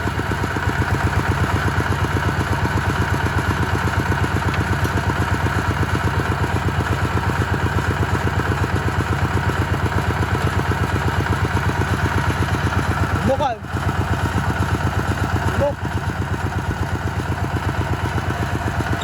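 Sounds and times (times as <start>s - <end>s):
diesel engine chugging: 0.0s - 19.0s.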